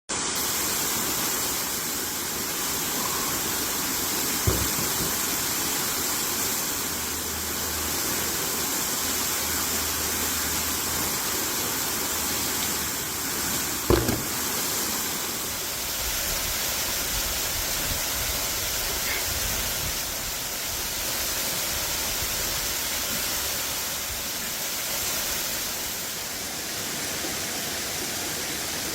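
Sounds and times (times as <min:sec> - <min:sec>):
brief thumps: 0:04.5 - 0:05.2, 0:13.9 - 0:14.4.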